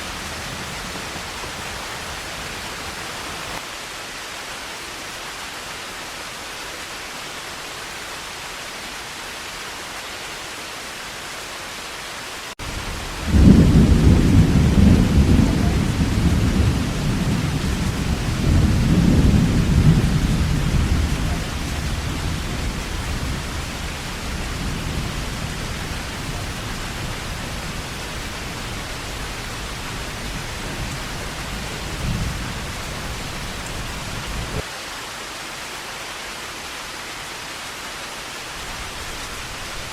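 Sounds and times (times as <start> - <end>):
heavy rain hissing: 0.0 - 39.9
low rumble of thunder: 12.6 - 34.6.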